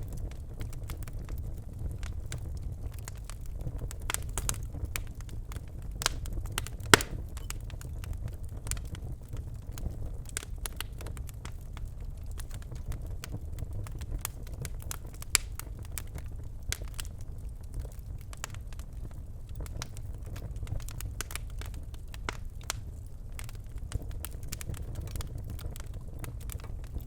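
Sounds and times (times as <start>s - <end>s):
fire crackling and snapping: 0.0s - 27.0s
low rumble of flames: 0.0s - 27.0s
sharp pop of fire: 6.9s - 7.6s.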